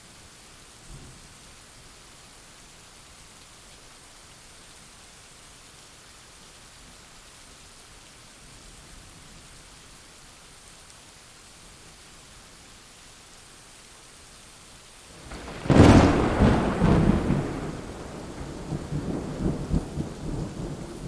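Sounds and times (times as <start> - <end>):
heavy rain: 0.2 - 21.0.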